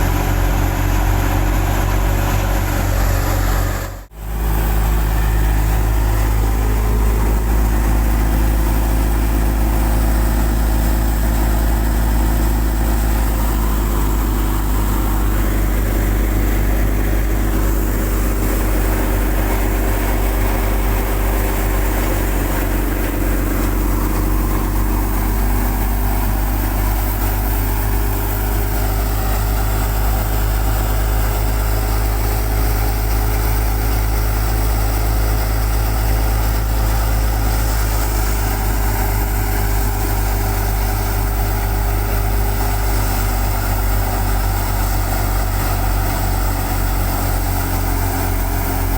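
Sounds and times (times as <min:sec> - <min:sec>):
thresher mechanical noise: 0:00.0 - 0:48.9
tractor diesel engine running: 0:00.0 - 0:48.9.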